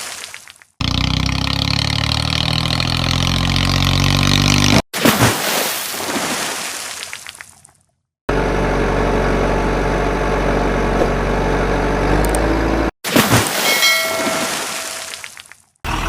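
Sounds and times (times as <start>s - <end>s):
heavy vehicle engine running: 8.3s - 12.9s.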